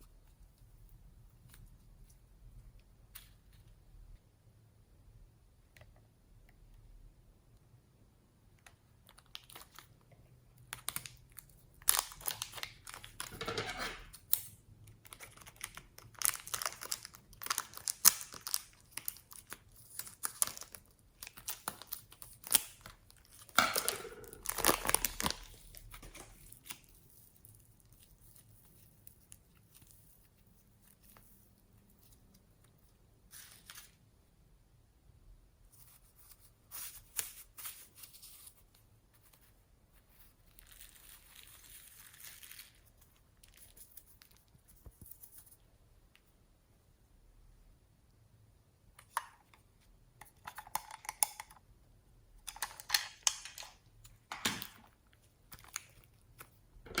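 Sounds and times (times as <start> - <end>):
crinkling and tearing: 10.7 - 13.4, 15.0 - 34.0, 35.8 - 45.6, 52.4 - 57.0.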